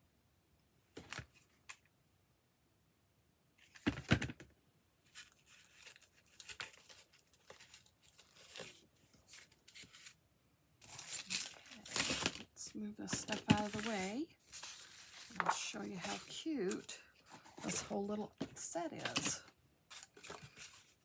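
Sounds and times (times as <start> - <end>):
paper rustling and crinkling: 5.1 - 10.2, 10.8 - 21.0.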